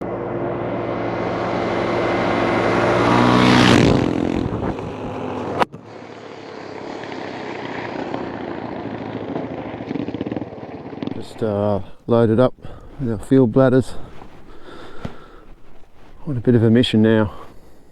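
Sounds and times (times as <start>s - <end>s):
quiet driving sound: 11.1s - 17.9s.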